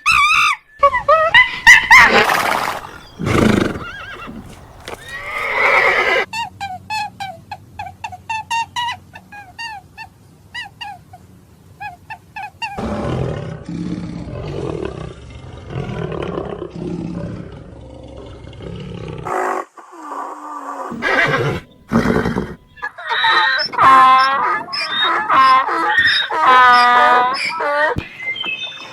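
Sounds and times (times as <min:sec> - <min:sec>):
animal chirping calls: 0:00.1 - 0:06.3, 0:20.9 - 0:28.9
animal rough roar: 0:02.0 - 0:06.3, 0:12.8 - 0:22.8.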